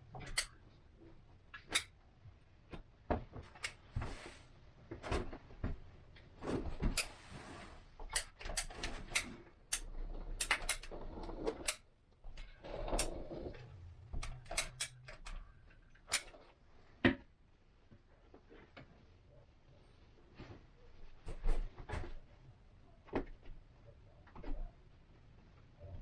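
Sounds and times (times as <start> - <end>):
clicks and knocks of hand work: 0.0 - 0.7, 1.5 - 2.0, 4.9 - 7.2, 8.0 - 17.3.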